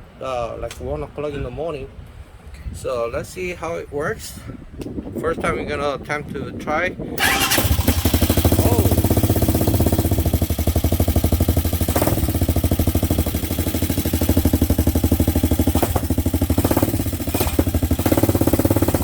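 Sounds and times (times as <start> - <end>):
motorcycle engine running: 7.2 - 19.0.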